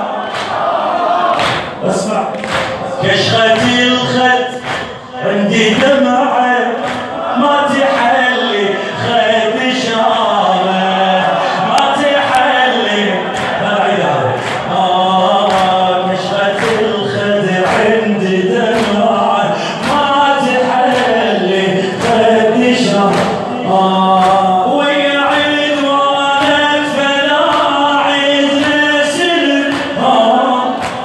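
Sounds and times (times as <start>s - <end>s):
group of voices chanting: 0.0s - 6.0s
man chanting a lament: 1.7s - 31.0s.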